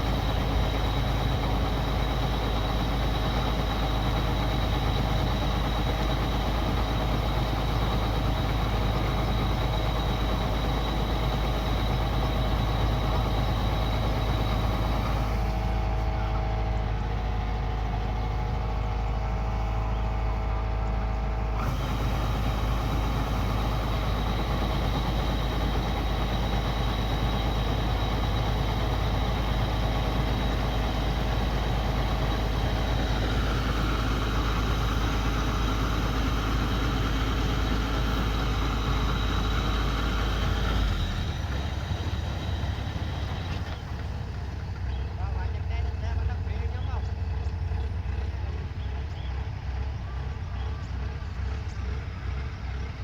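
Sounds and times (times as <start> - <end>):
combine harvester running: 0.0 - 53.0.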